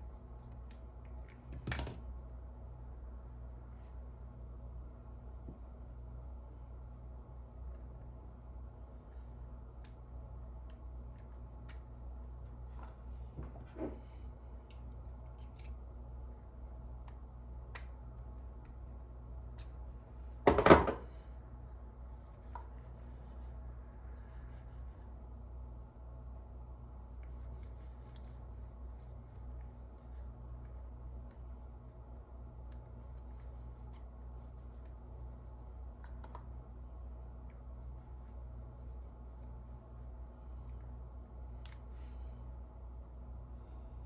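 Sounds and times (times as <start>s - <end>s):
steady low hum: 0.0s - 44.0s
small tools scratching and clicking: 14.7s - 15.8s.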